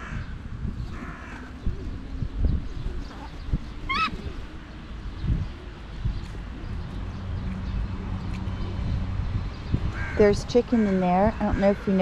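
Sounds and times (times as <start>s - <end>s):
wavering bird call: 3.9s - 4.4s.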